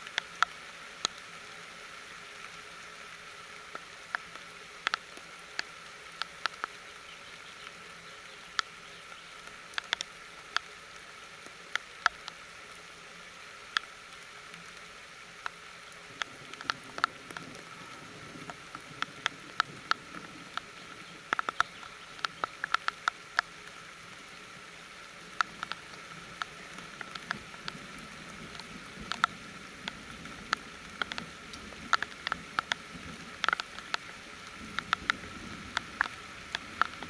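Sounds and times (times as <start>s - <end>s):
raindrop taps: 0.0s - 1.3s, 3.6s - 10.7s, 15.4s - 24.2s, 25.2s - 37.0s
rain hissing on net roof: 0.0s - 37.0s.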